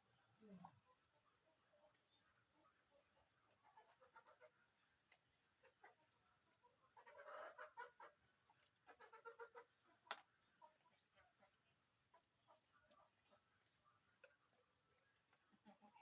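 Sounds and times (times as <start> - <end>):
faint clicks: 3.2 - 6.8, 8.5 - 16.0.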